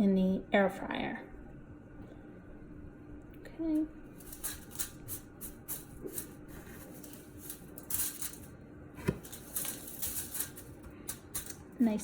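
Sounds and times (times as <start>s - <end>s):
crumbly rustling of breadcrumbs: 4.1s - 11.3s.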